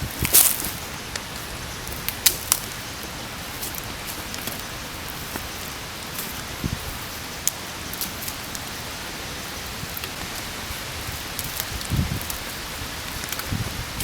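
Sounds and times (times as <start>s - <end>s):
rain hissing: 0.0s - 14.0s.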